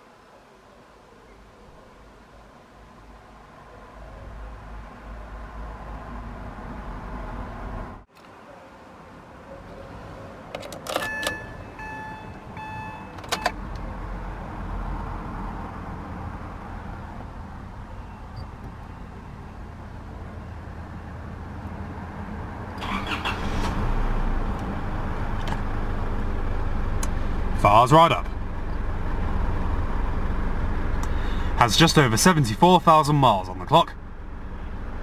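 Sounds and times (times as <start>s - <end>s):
dashboard warning chimes: 10.9s - 13.6s
engine cranking and idling: 22.7s - 32.9s.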